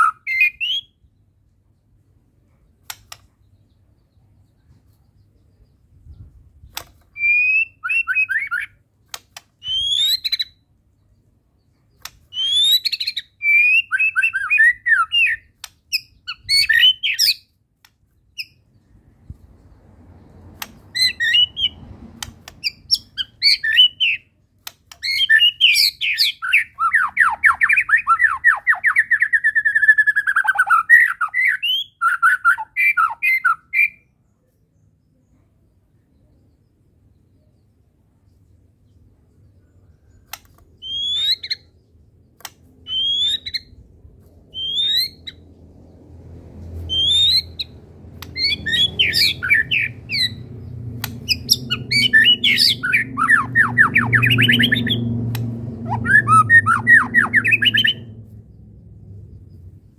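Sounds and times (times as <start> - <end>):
songbird singing whistles and chatter: 0.0 - 1.2, 2.8 - 8.8, 9.6 - 10.6, 11.9 - 17.6, 20.6 - 34.1, 39.9 - 41.8, 42.4 - 43.8, 44.5 - 46.0, 46.8 - 58.3.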